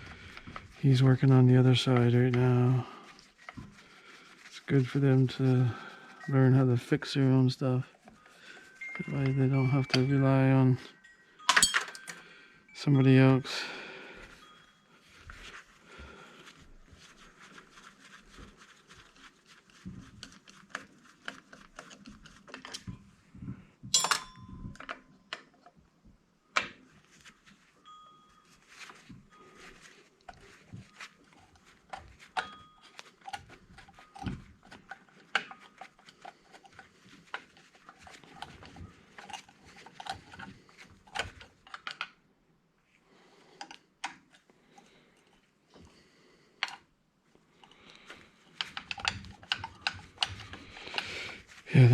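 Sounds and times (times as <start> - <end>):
metal parts and tools clinking: 8.6 - 12.9, 23.9 - 25.7, 31.6 - 42.1, 48.5 - 51.4.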